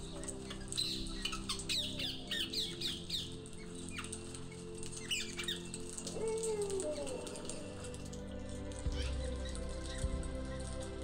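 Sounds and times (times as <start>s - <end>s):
birds squawking: 0.0s - 11.0s
low background music: 0.0s - 11.0s.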